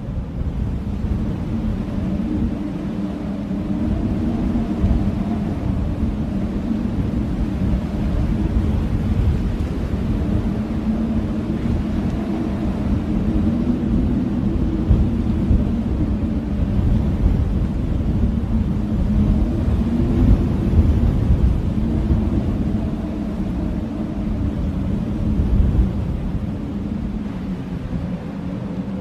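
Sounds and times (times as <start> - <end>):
wind howling: 0.0 - 29.0.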